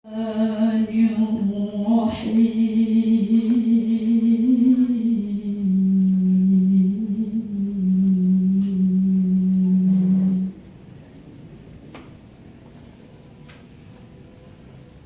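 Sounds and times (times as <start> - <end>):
woman chanting recitation: 0.0 - 10.7.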